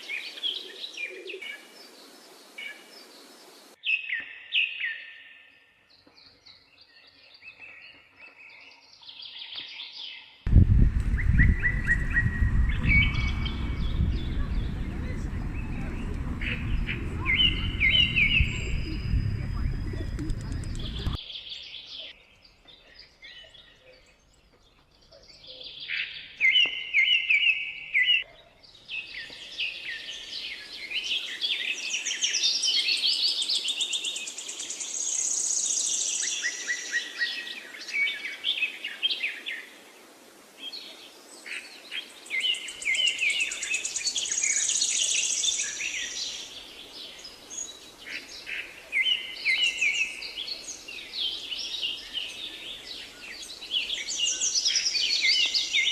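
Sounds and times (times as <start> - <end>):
birds chirping in rapid trills: 10.5 - 21.2.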